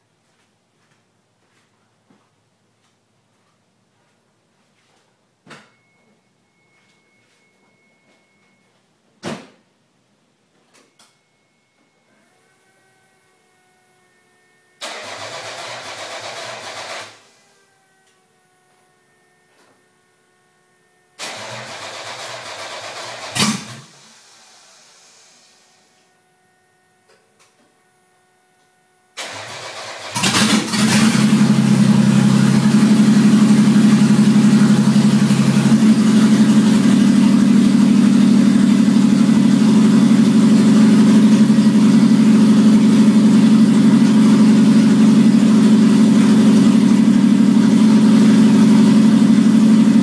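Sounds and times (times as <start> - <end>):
engine cranking on starter: 14.8 - 17.4, 21.2 - 25.6, 29.2 - 47.0
engine running without exhaust: 29.2 - 50.0.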